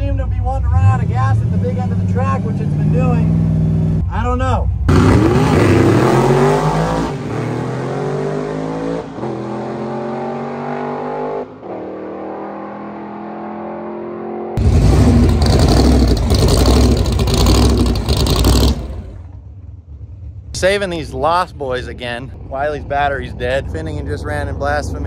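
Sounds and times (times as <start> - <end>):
car engine accelerating hard: 4.9 - 19.3
loud rough rumble: 14.6 - 25.0.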